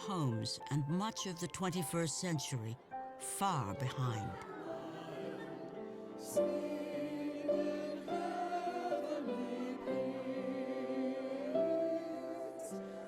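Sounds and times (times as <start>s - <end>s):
choir singing held notes: 3.4s - 13.0s.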